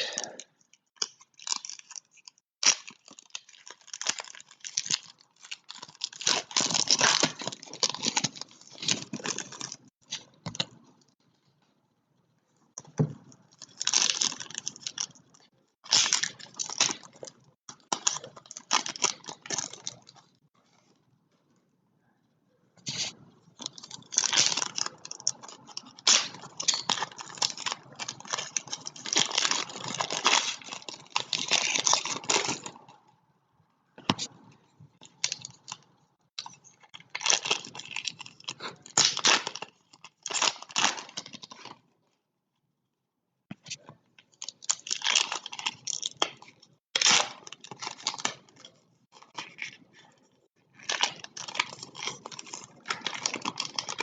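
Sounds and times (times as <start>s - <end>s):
foil wrapper tearing and crinkling: 1.0s - 10.2s, 13.6s - 15.2s, 15.8s - 20.1s, 23.6s - 32.9s, 36.4s - 41.8s, 44.3s - 50.1s, 50.7s - 54.0s.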